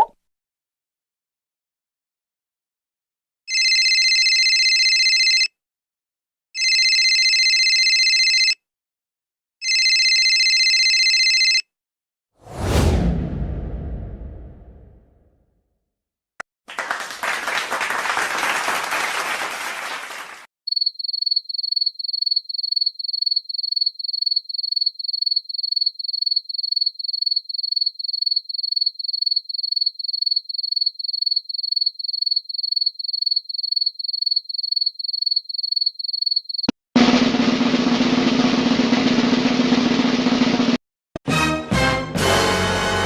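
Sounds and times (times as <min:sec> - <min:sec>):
applause: 0:16.7 - 0:20.5.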